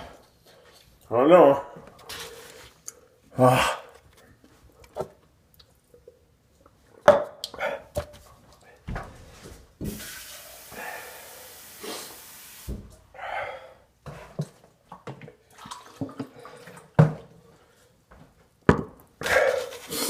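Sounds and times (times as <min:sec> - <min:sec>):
long hiss: 0:09.9 - 0:13.0
heavy breathing: 0:10.7 - 0:12.1, 0:13.1 - 0:13.9, 0:19.2 - 0:20.0.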